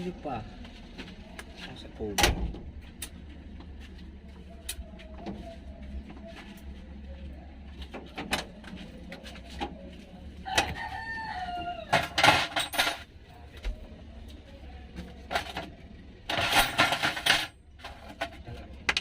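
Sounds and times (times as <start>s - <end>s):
rooster crowing: 10.4s - 12.2s.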